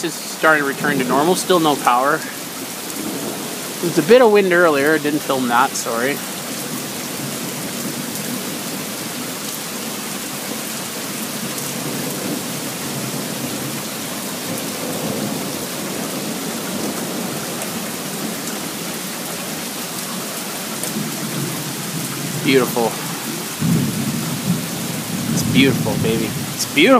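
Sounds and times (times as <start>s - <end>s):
heavy rain falling: 0.0s - 26.9s
thunder rumble: 20.9s - 26.9s.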